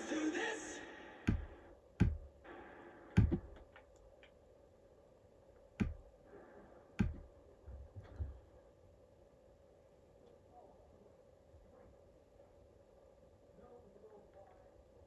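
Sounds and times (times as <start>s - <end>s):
faint steady hum: 0.0s - 15.0s
sharp knocks: 1.3s - 2.3s, 3.2s - 3.6s, 5.8s - 6.1s, 7.0s - 7.3s.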